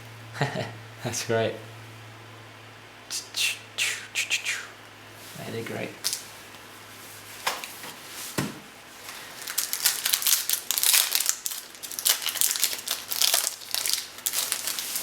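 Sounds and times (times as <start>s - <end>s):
foil pack crinkling and tearing: 9.0s - 15.0s.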